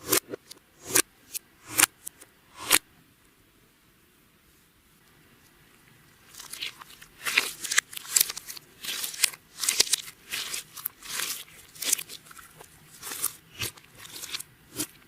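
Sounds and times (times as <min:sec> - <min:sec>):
slime crackling and crunching: 0:06.3 - 0:15.0.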